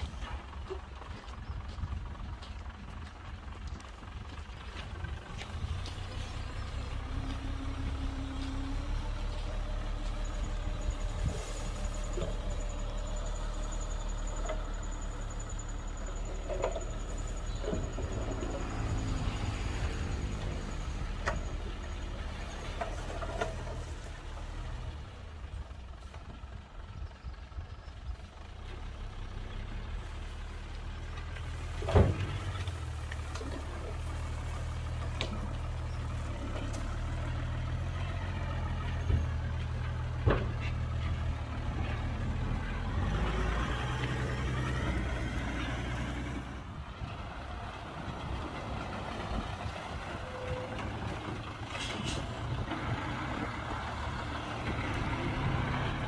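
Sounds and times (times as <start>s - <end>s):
heavy diesel machinery running: 0.0s - 56.0s.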